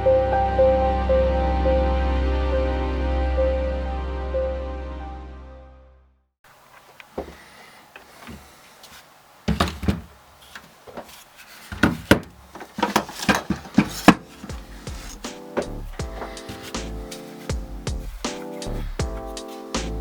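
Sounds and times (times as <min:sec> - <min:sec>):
handling clicks and knocks: 0:09.5 - 0:16.9.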